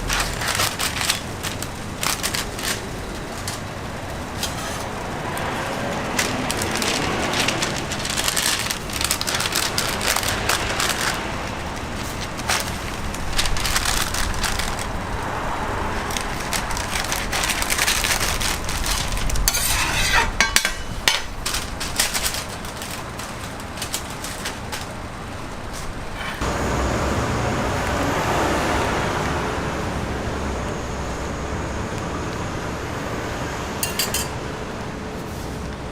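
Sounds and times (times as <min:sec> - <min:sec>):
utensils clattering and scraping: 0:00.0 - 0:26.4, 0:33.8 - 0:34.4
traffic noise: 0:00.0 - 0:35.9.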